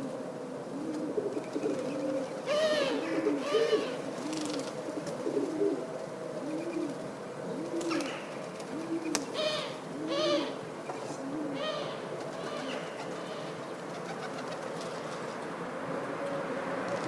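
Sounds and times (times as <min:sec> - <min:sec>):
pigeons cooing: 0:00.0 - 0:17.0
higher bird calls: 0:01.3 - 0:05.8, 0:06.4 - 0:15.2.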